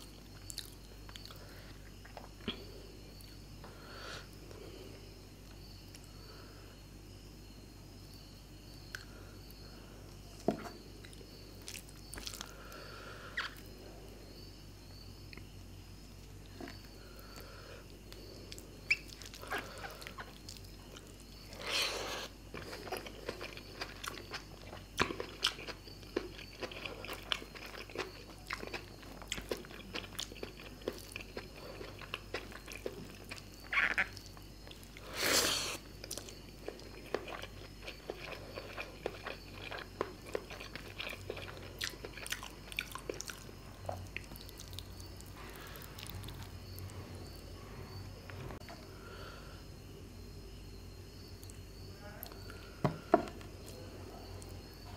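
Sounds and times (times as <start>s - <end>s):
chewing with wet mouth clicks: 0.3s - 3.4s, 22.5s - 35.0s, 36.0s - 46.9s.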